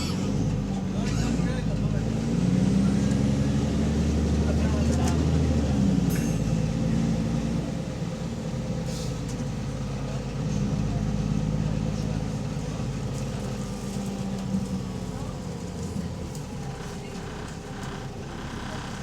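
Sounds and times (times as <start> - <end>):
bus diesel engine running: 0.0 - 19.0.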